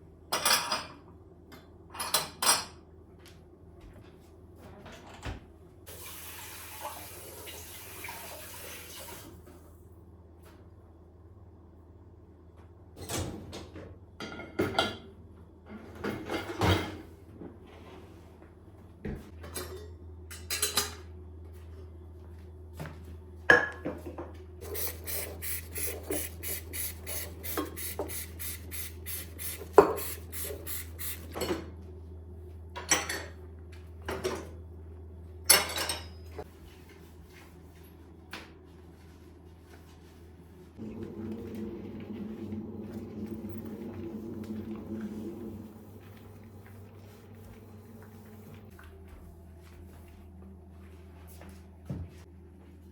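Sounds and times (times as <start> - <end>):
low steady hum: 19.5 - 52.9
kitchenware clinks and knocks: 35.5 - 36.4.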